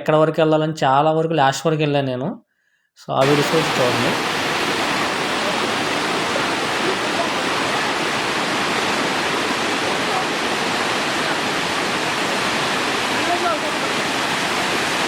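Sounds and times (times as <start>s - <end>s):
water rushing from waterfall: 3.2s - 15.0s.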